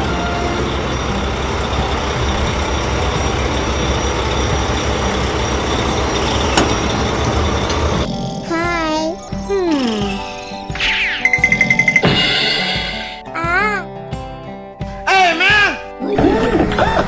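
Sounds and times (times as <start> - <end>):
heavy truck engine rumbling: 0.0 - 10.6.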